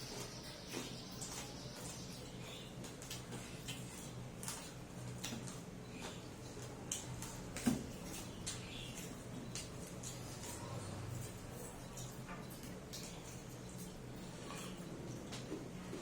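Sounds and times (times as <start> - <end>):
chewing clicks and smacks: 2.8 - 5.7.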